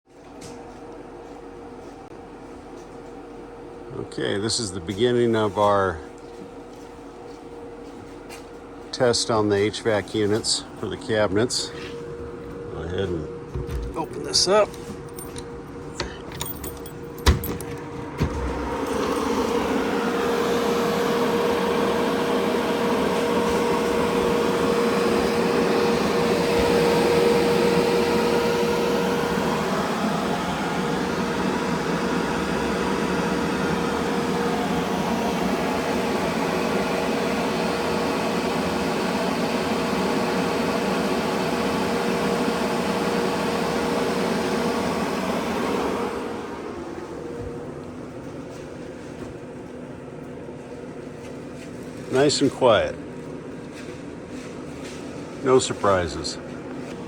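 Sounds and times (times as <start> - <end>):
air conditioner hum: 0.1 - 57.0
air conditioner fan whoosh: 0.2 - 57.0.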